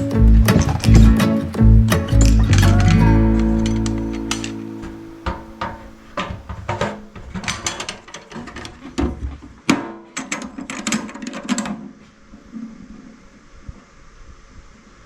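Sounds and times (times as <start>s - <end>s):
sharp clicks and knocks: 0.0s - 3.0s
background music: 0.0s - 5.9s.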